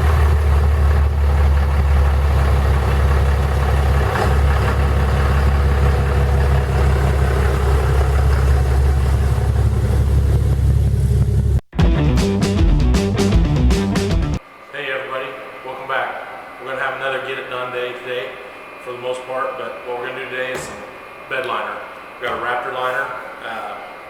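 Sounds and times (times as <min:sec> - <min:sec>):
pickup truck engine idling: 0:00.0 - 0:11.7.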